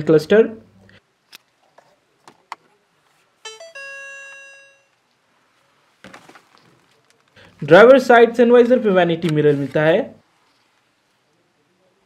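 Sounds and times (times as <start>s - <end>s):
dashboard chime: 3.4s - 4.9s.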